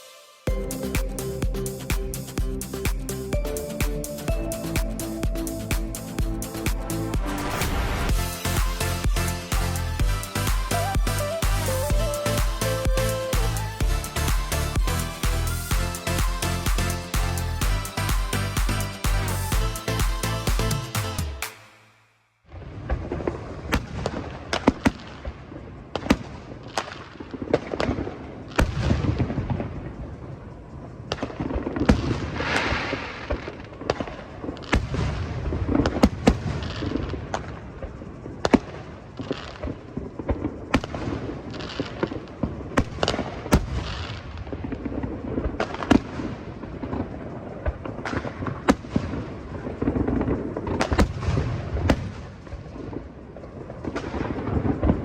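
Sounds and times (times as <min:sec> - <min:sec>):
low rumbling booms: 0:05.2 - 0:11.2
fireworks bangs: 0:31.1 - 0:53.1.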